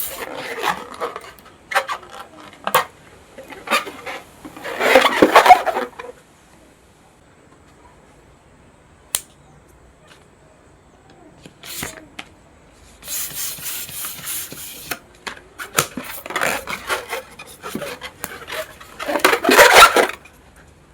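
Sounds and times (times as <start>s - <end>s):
rubber balloons rubbing: 0.0s - 5.9s, 11.6s - 12.0s, 13.0s - 15.0s, 15.6s - 20.2s.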